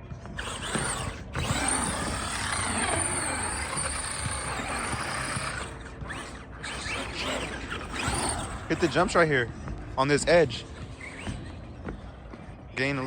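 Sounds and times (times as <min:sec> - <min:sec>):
electric motor whine: 0:00.0 - 0:12.6
toy trucks rolling and rattling: 0:00.4 - 0:09.3.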